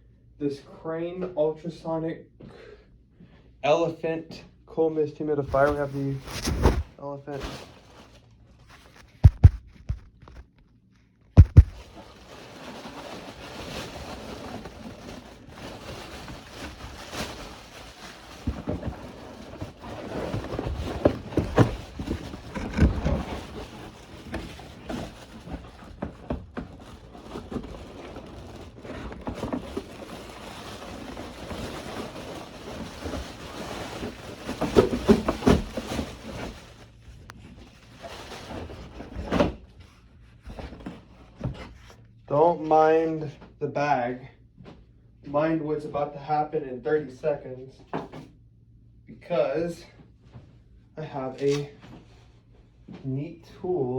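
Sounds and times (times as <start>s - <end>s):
packaging rustling and crinkling: 5.5s - 10.6s, 11.4s - 39.2s
sharp crackles and knocks: 7.8s - 12.8s, 14.5s - 37.7s.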